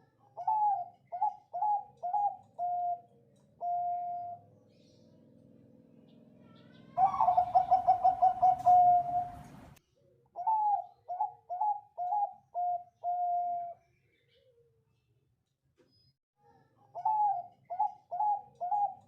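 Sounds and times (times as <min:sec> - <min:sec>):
dove cooing: 0:00.3 - 0:04.5, 0:06.4 - 0:09.8, 0:10.4 - 0:13.8, 0:16.9 - 0:19.0.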